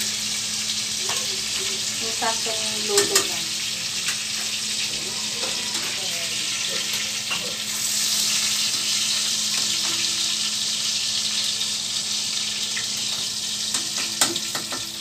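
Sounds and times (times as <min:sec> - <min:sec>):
meat sizzling in oil: 0:00.0 - 0:15.0
metal tongs clicking on pan: 0:02.9 - 0:03.4.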